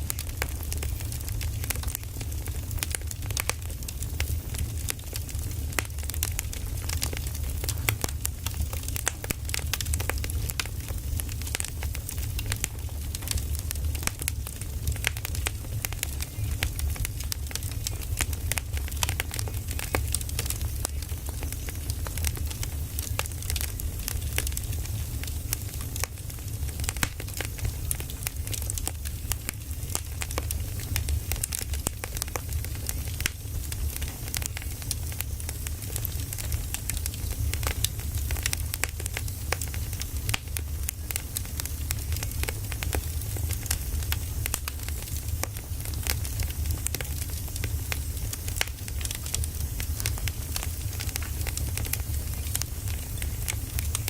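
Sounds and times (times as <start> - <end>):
fire crackles and pops: 0.0 - 54.0
low fire rumble: 0.0 - 54.0.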